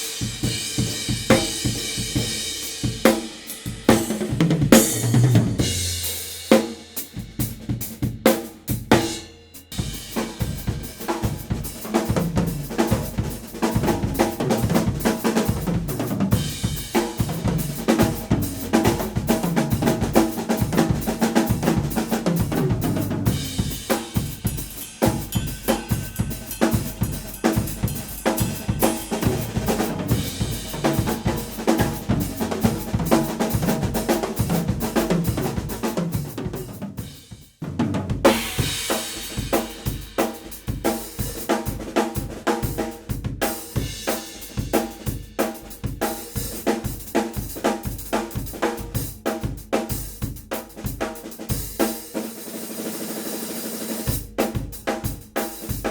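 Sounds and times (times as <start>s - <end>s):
drum kit groove: 0.0s - 55.9s
cymbals ringing: 23.3s - 32.5s.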